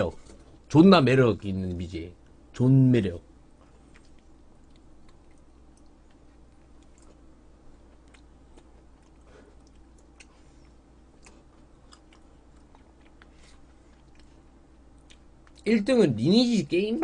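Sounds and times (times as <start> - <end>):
low steady hum: 0.0 - 17.0
person chewing: 3.6 - 15.6.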